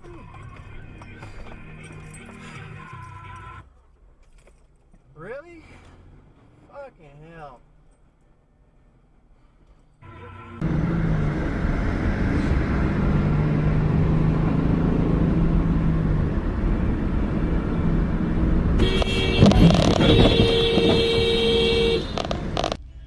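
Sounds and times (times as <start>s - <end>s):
car driving rumble: 0.0s - 23.0s
car horn blast: 10.0s - 10.7s, 18.8s - 22.7s.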